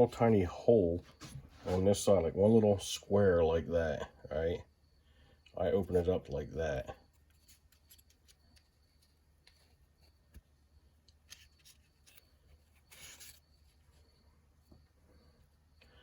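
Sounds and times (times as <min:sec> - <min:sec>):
plastic part rustling: 0:07.2 - 0:14.0.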